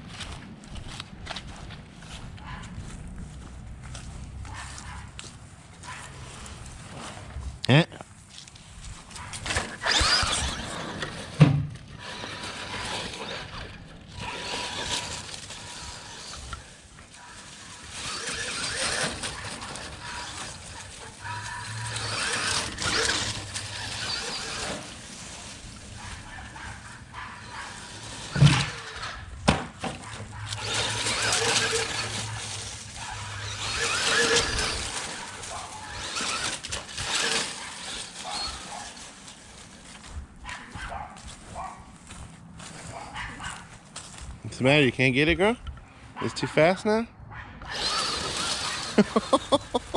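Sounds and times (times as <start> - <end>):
rc truck motor whining: 9.2 - 29.3, 29.9 - 40.0, 47.6 - 49.9.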